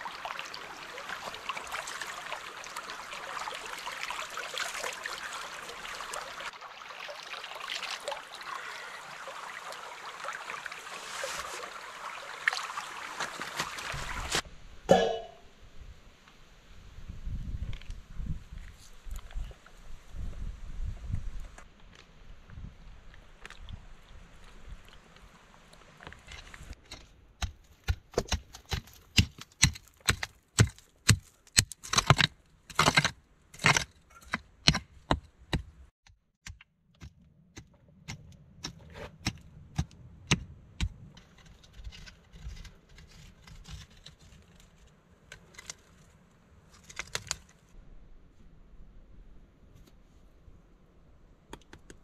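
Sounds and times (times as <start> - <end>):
scraping of loose earth: 10.9 - 11.8, 13.1 - 14.5, 40.8 - 47.8
hand tools striking soil and stones: 26.2 - 35.8.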